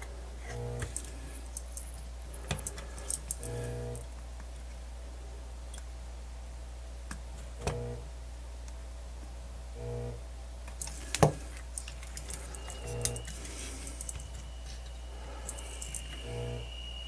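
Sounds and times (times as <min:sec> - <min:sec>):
steady low hum: 0:00.0 - 0:17.0
short low buzz: 0:03.4 - 0:04.0, 0:09.7 - 0:10.2, 0:12.4 - 0:17.0.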